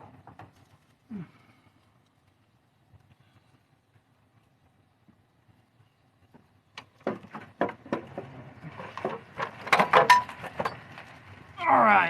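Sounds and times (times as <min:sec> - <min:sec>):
sharp knocks and metallic clunks: 0:06.3 - 0:10.8.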